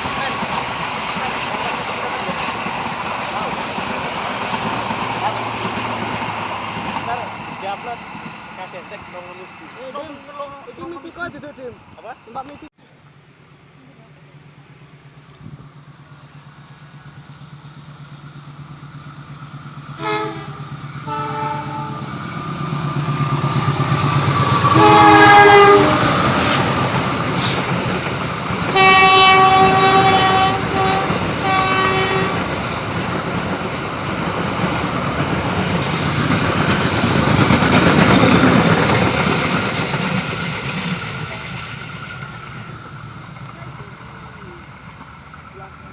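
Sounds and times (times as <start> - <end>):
train rumbling past: 0.0 - 45.9
locomotive horn blasts: 20.0 - 22.2, 24.6 - 26.2, 28.7 - 32.5.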